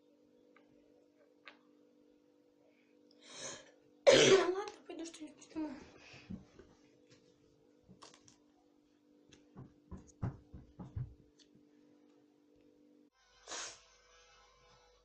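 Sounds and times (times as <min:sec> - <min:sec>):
faint steady hum: 0:00.0 - 0:15.0
soft thumps and knocks: 0:09.5 - 0:11.2.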